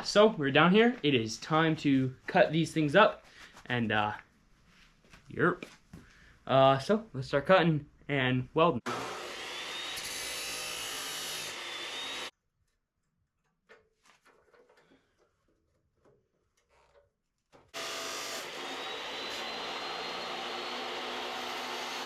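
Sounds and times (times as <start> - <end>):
power cutting tool cutting steel: 8.9 - 12.3, 17.8 - 22.0.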